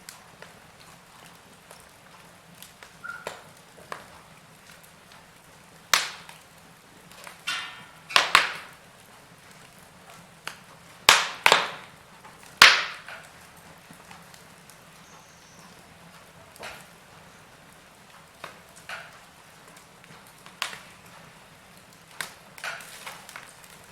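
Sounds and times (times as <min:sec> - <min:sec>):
wood fire crackling: 0:00.0 - 0:23.9
sharp pops: 0:05.9 - 0:06.4, 0:07.3 - 0:08.8, 0:10.5 - 0:11.9, 0:12.6 - 0:13.2.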